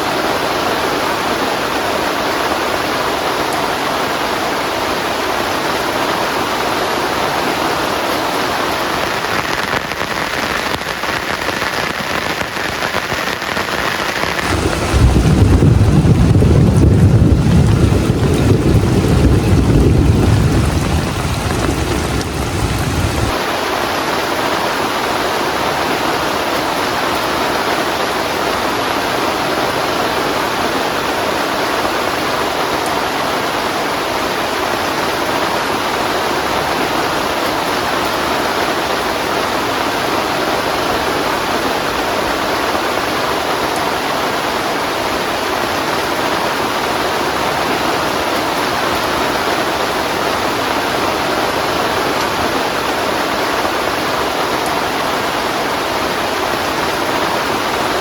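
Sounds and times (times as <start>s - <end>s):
heavy rain falling: 0.0s - 58.0s
wind rumble on microphone: 7.8s - 23.6s.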